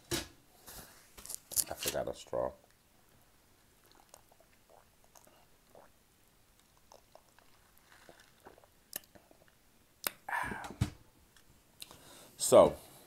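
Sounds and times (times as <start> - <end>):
soft chewing: 3.8 - 5.9, 6.6 - 10.3
wet mouth clicks: 3.8 - 5.9, 6.6 - 10.3.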